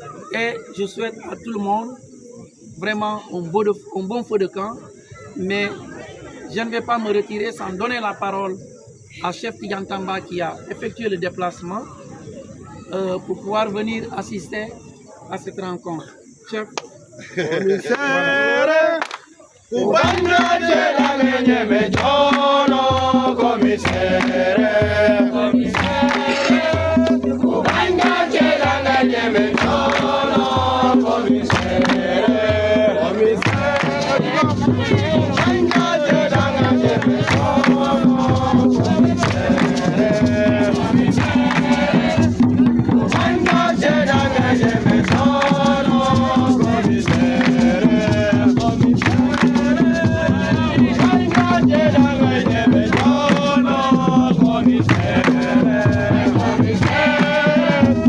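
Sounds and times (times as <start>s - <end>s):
group of voices chanting: 17.7s - 58.0s
rhythmic percussion: 19.7s - 58.0s.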